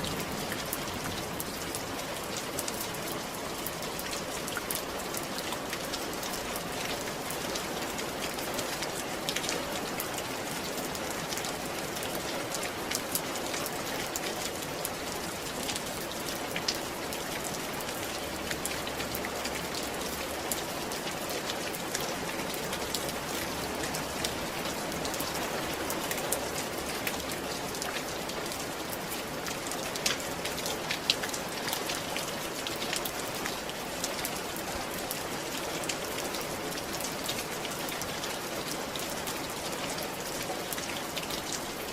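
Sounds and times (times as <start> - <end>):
rain falling on a roof: 0.0 - 41.9.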